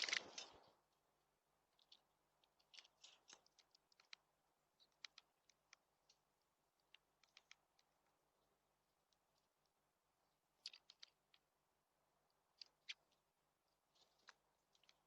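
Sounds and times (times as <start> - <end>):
small birds clicking at feeder: 0.0 - 0.7, 1.8 - 6.2, 6.8 - 7.9, 10.6 - 11.4, 12.6 - 13.2, 13.9 - 15.0.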